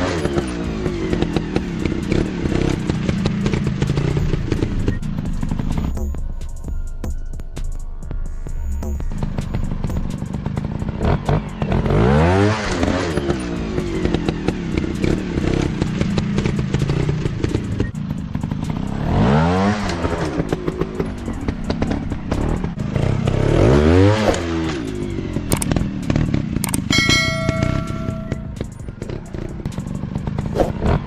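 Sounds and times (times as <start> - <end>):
dirt bike engines revving: 0.0 - 5.9, 9.2 - 31.0
engines running at low revs: 0.0 - 31.0.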